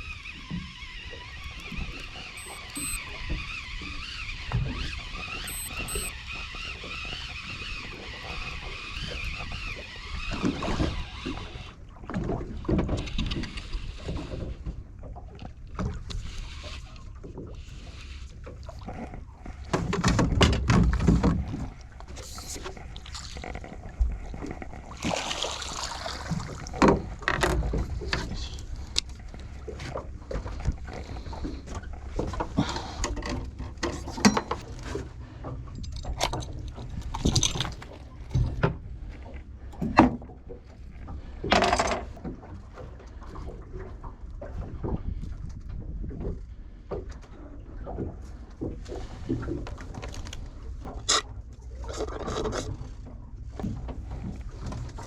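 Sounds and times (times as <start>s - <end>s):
knocks and clicks: 1.4s - 3.0s, 5.5s - 6.1s.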